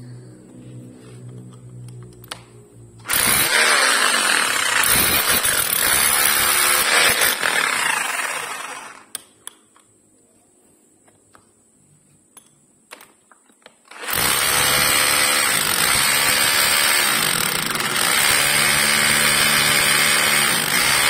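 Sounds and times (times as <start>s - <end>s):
rotary hammer drill running: 3.0s - 9.1s, 13.9s - 21.0s.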